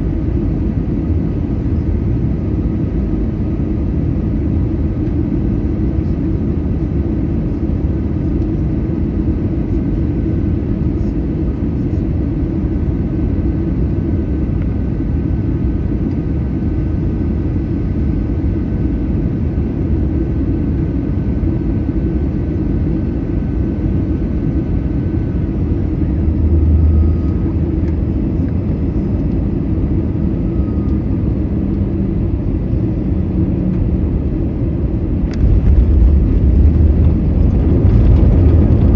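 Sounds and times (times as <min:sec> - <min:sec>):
engine and airflow rumble: 0:00.0 - 0:38.9
faint high whine: 0:26.2 - 0:27.9.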